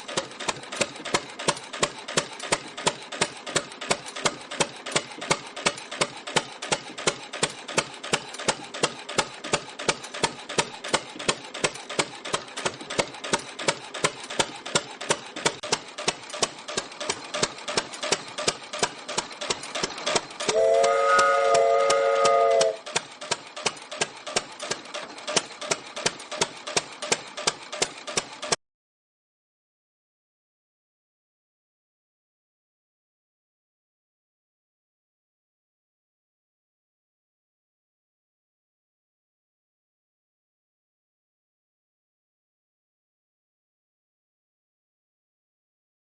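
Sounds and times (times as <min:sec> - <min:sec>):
stationary engine knocking: 0:00.0 - 0:28.6
loud whistle: 0:20.5 - 0:22.8.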